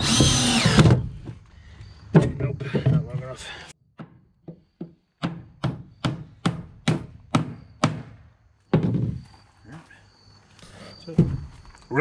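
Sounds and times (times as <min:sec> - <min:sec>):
hammer striking wood: 0:04.0 - 0:09.0.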